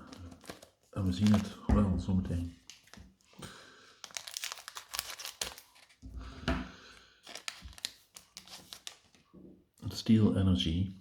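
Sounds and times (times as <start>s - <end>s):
foil wrapper tearing and crinkling: 0.0s - 1.5s, 2.6s - 3.2s, 4.0s - 6.0s, 7.2s - 9.2s.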